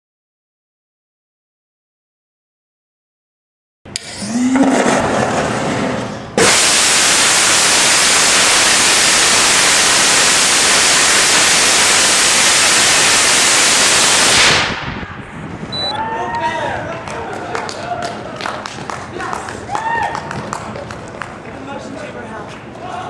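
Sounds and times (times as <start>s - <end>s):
rocket engine roar: 4.2s - 15.9s
hissing rumbling build-up: 4.3s - 15.8s.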